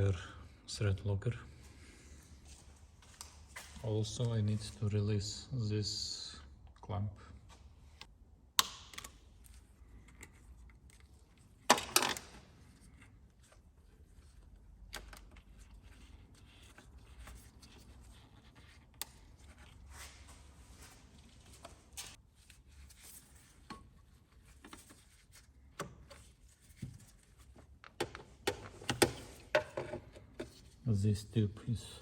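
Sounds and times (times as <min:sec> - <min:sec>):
faint rubbing and handling: 0:12.6 - 0:27.8.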